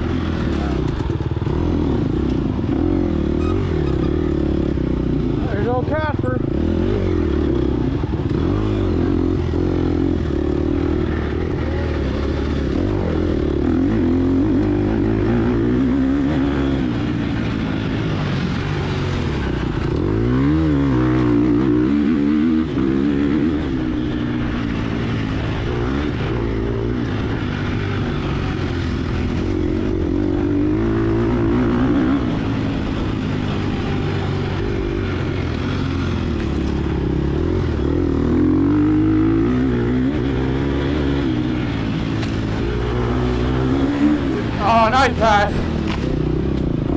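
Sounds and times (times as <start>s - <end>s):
dirt bike engine revving: 42.3s - 46.9s.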